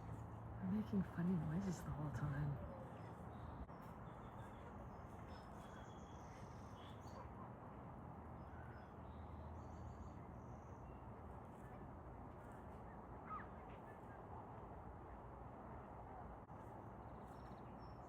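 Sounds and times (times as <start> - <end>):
faint high bird chirps: 2.8 - 7.4.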